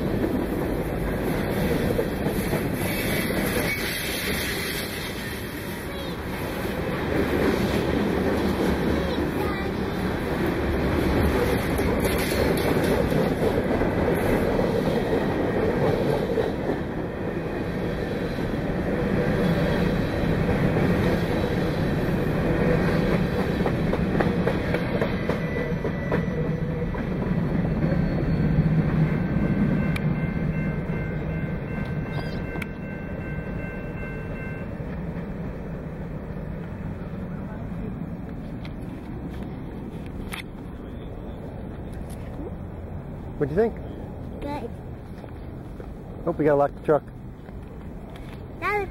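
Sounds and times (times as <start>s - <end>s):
train wheels clacking on rails: 0.0s - 35.6s.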